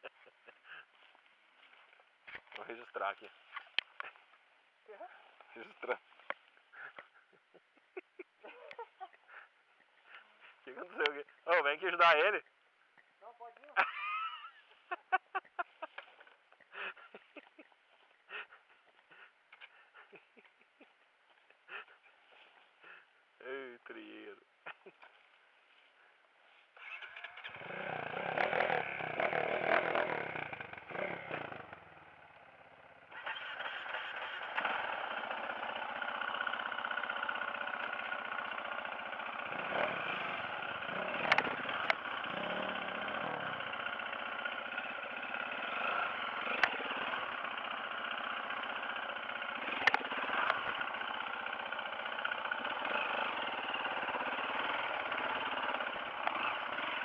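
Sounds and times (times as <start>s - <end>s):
dirt bike engine running: 26.8s - 57.0s
sharp clicks: 41.2s - 42.1s.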